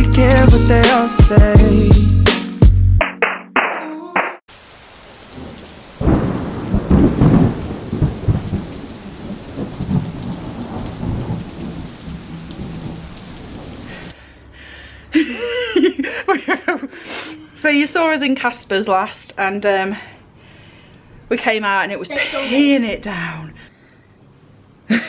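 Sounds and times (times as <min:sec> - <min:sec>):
heavy rain pouring: 0:04.5 - 0:14.2
thunder rolling: 0:05.2 - 0:14.1.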